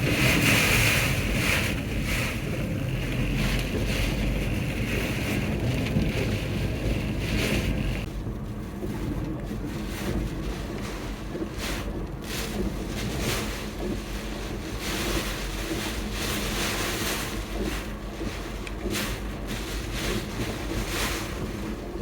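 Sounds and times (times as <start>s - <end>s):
wind and water rushing: 0.0s - 15.8s
low steady hum: 0.0s - 22.0s.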